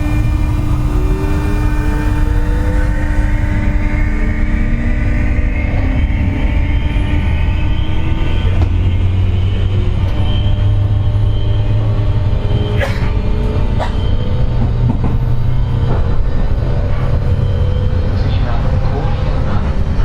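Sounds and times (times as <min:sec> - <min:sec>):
electric train motor hum and whine: 0:00.0 - 0:20.0.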